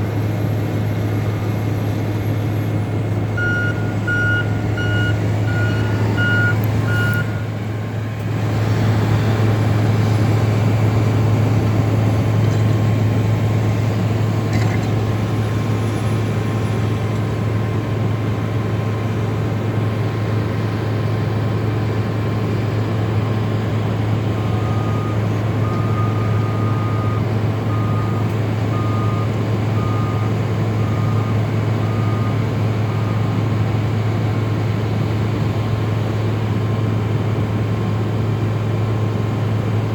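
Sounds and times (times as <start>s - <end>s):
diesel engines running: 0.0s - 39.9s
lower-pitched backup alarm beeping: 3.4s - 7.6s
reversing alarm beeping: 3.4s - 7.6s, 24.4s - 33.4s.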